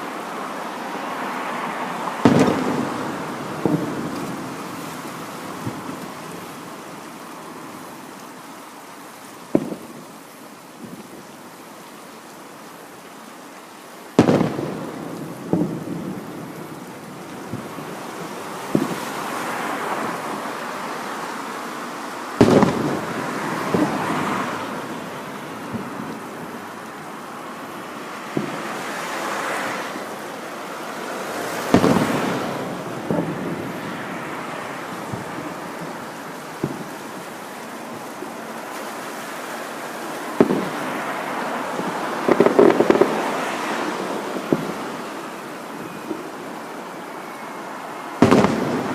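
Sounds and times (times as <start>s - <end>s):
fireworks booming: 2.2s - 6.6s, 9.5s - 10.1s, 14.1s - 20.5s, 22.4s - 29.0s, 30.9s - 39.0s, 40.2s - 46.3s, 48.2s - 48.9s.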